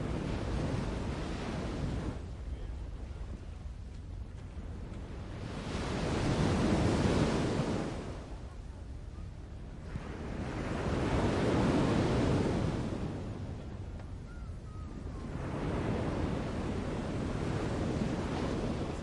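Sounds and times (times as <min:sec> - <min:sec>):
waves washing in: 0:00.0 - 0:02.4, 0:04.9 - 0:08.5, 0:09.8 - 0:13.9, 0:15.0 - 0:19.0.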